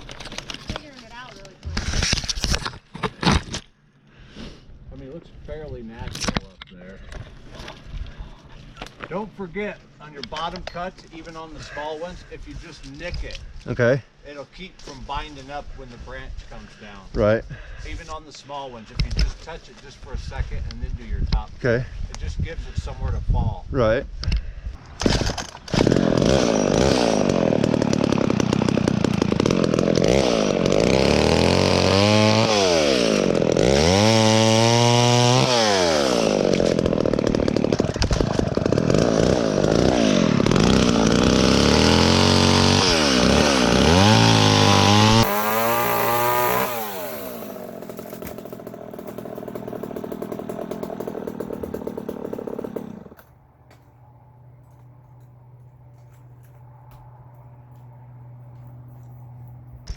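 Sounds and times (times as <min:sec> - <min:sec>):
chainsaw revving: 0:25.0 - 0:53.3.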